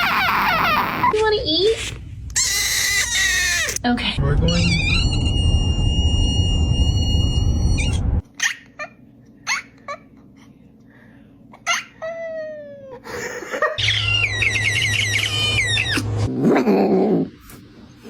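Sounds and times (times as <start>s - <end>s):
cat chirping: 13.8s - 16.1s.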